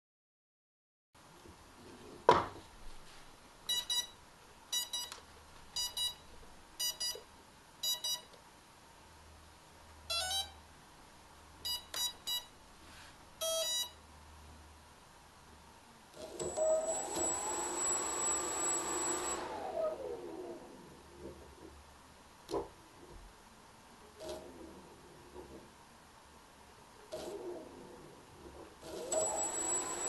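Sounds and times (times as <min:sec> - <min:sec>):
quadcopter motor beeps: 0:16.5 - 0:19.5, 0:29.0 - 0:30.0.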